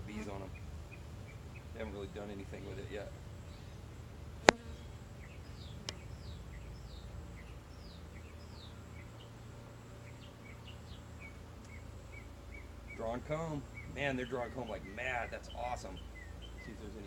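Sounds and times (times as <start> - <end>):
bird chirping: 0.0 - 17.0
steady low hum: 0.0 - 17.0.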